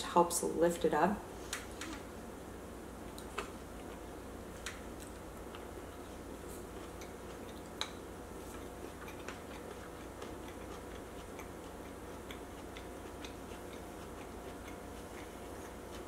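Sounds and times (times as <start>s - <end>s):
faint steady hum: 0.0s - 16.0s
wet mouth chewing clicks: 6.7s - 16.0s.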